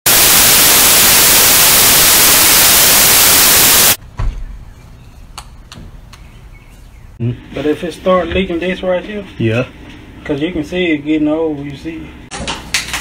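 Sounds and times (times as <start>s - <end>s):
television static white noise: 0.1s - 4.0s.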